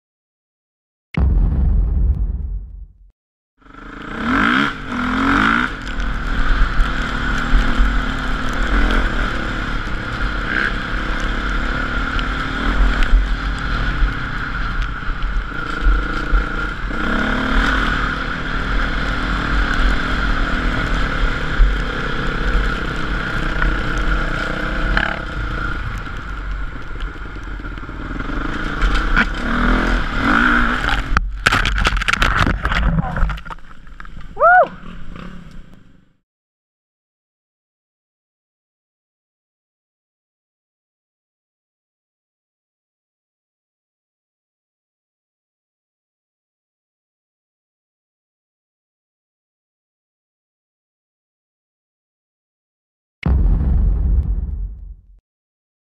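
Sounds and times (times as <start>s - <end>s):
dirt bike engine revving: 3.6s - 14.7s, 15.5s - 31.2s.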